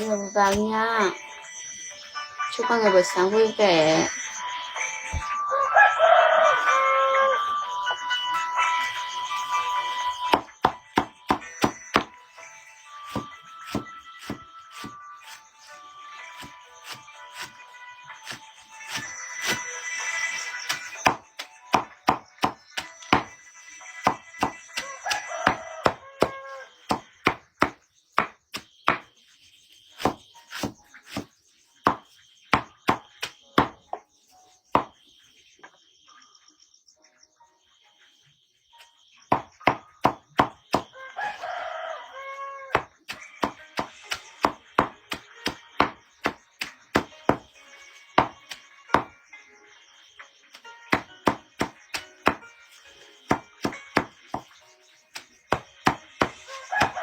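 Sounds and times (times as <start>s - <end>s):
rooster crowing: 5.2s - 7.7s, 24.8s - 26.8s, 40.9s - 42.8s, 56.4s - 57.0s
chopping strokes: 13.1s - 15.4s, 16.4s - 17.6s, 18.2s - 19.7s, 24.0s - 29.1s, 30.0s - 31.3s, 31.9s - 33.8s, 42.7s - 47.5s.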